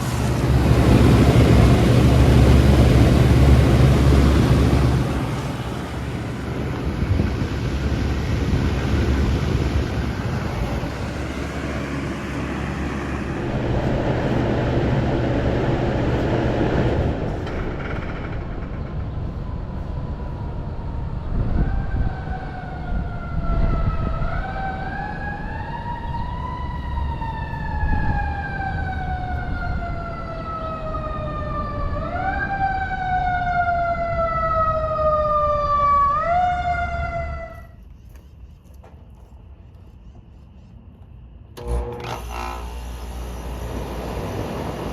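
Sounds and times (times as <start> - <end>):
emergency vehicle siren wailing: 0.0 - 13.8, 19.2 - 37.8
air conditioner fan rushing: 0.0 - 33.4, 41.1 - 44.9.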